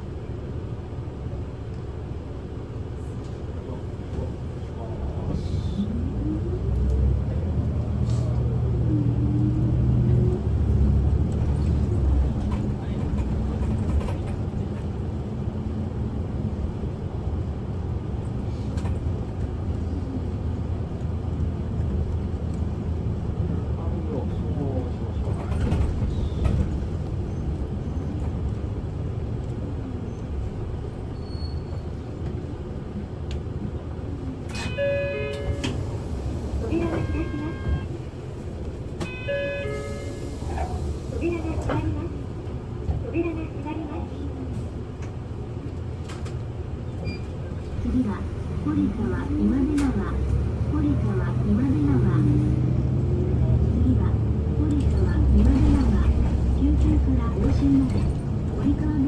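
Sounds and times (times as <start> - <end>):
bus engine and road rumble: 0.0 - 59.0
bus whine: 0.0 - 59.0.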